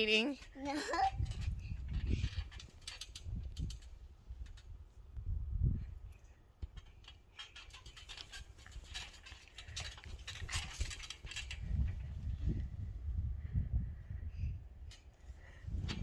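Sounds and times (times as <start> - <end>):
rustling: 6.7 - 12.6.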